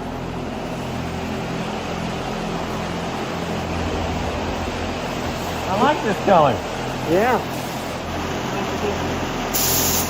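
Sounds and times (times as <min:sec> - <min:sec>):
machinery humming: 0:00.0 - 0:09.6
air rushing: 0:02.6 - 0:08.1.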